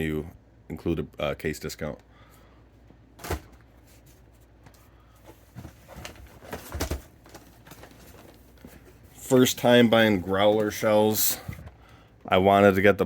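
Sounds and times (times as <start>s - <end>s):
cardboard rustling: 3.2s - 11.2s.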